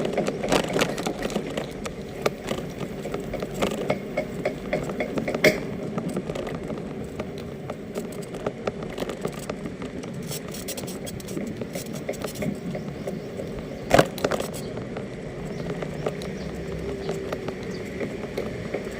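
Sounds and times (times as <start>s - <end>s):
electric bicycle rumbling: 0.0s - 18.9s
irregular clicks and knocks: 0.0s - 18.9s.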